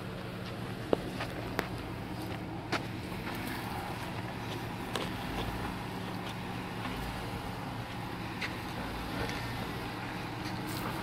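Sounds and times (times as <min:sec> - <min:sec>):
vehicle engine running low revs: 0:00.0 - 0:11.0.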